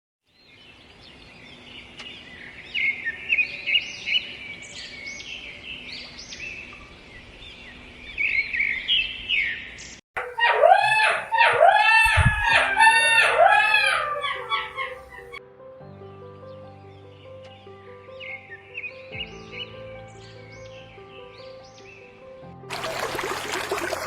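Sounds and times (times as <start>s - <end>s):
birds chirping: 0.3s - 15.4s, 16.1s - 22.4s.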